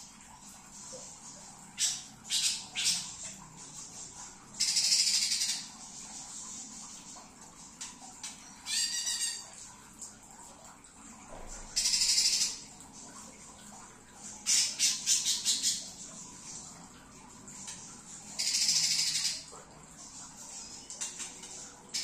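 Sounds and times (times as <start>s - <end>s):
rapid rattling bird trill: 1.2s - 6.3s, 8.4s - 9.6s, 11.8s - 12.7s, 14.4s - 16.3s, 17.6s - 22.0s.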